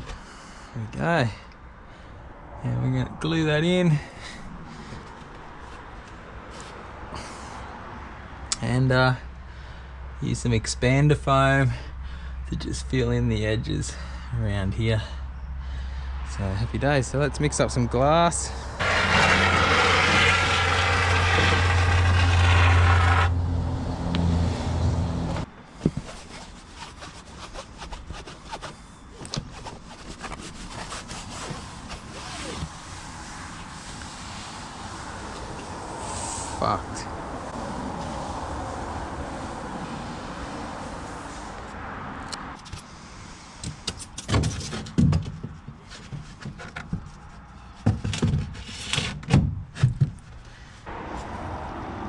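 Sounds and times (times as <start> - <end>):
scraping rustle: 5.0 - 6.9, 18.8 - 23.4, 25.3 - 36.6
motor humming: 18.8 - 23.4.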